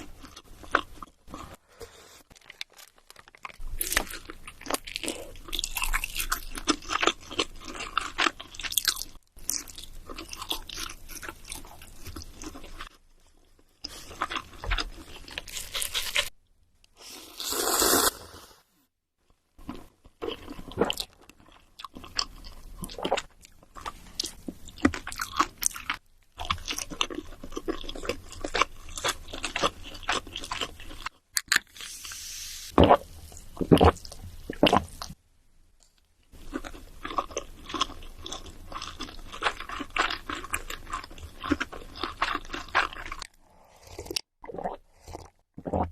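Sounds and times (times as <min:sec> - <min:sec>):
crunchy food being chewed: 0:02.2 - 0:16.4, 0:19.6 - 0:31.8, 0:35.8 - 0:45.9
hiss: 0:31.8 - 0:32.7.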